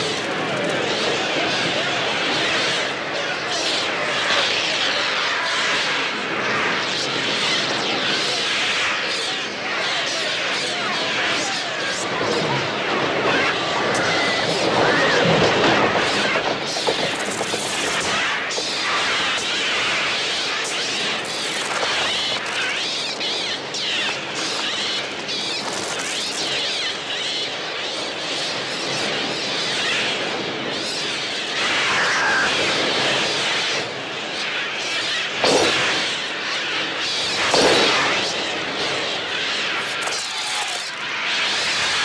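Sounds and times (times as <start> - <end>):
electronic gull cries: 31.6 - 33.0.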